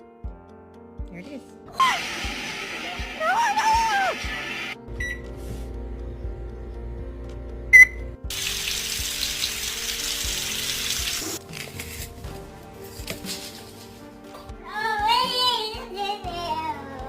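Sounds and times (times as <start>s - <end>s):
background music: 0.0s - 17.0s
running water hiss: 1.7s - 4.8s, 8.3s - 11.4s.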